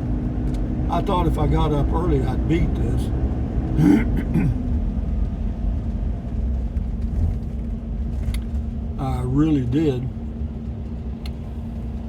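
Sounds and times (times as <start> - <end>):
vehicle engine and road rumble: 0.0 - 12.0
click: 11.2 - 11.4.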